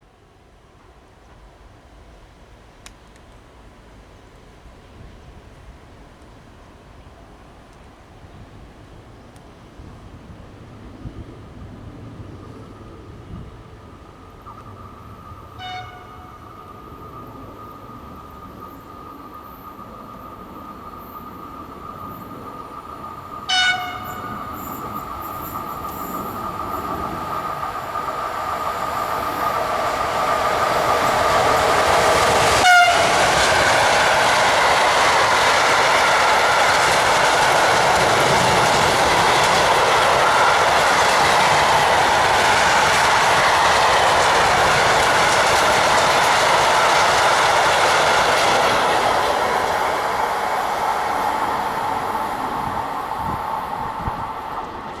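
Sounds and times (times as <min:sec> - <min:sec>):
freight train passing: 0:00.0 - 0:55.0
wheels clickety-clack on rails: 0:08.6 - 0:55.0
locomotive horn blast: 0:15.6 - 0:16.4, 0:23.5 - 0:24.3, 0:32.5 - 0:33.4.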